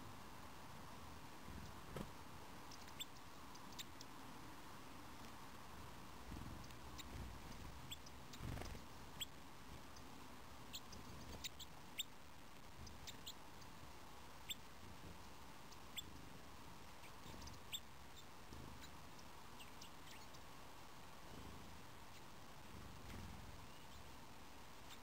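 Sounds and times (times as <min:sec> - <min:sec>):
small birds high call notes: 0:06.9 - 0:12.2.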